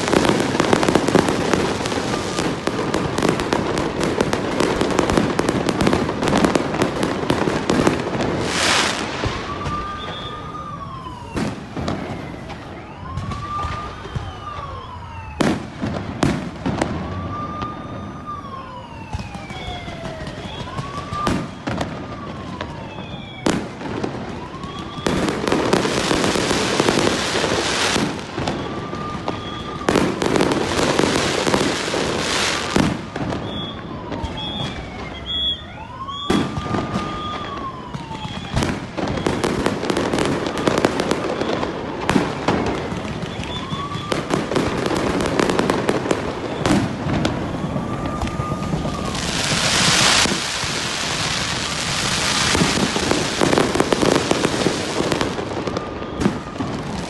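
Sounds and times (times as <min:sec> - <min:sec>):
fireworks crackling: 0:00.0 - 0:57.0
wailing tone: 0:47.5 - 0:49.9.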